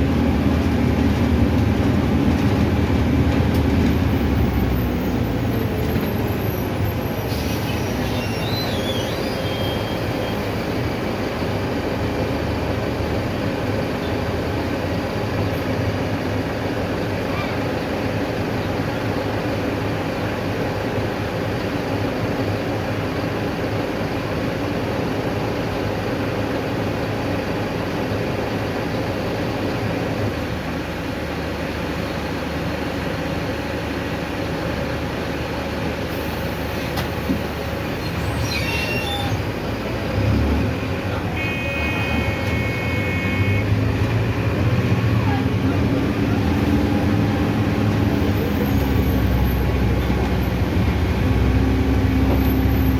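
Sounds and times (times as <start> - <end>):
bus diesel engine running: 0.0 - 52.9
road noise: 0.0 - 52.9
brief squeak: 5.8 - 10.4, 37.9 - 39.5.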